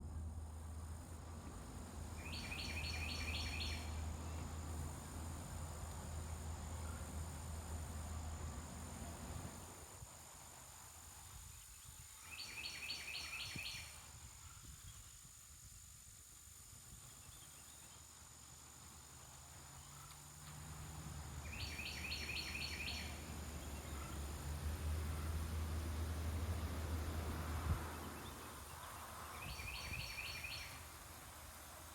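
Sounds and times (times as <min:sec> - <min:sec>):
songbird singing: 0:00.0 - 0:09.7, 0:11.2 - 0:15.4, 0:16.6 - 0:31.9
low wind rumble: 0:22.5 - 0:31.8.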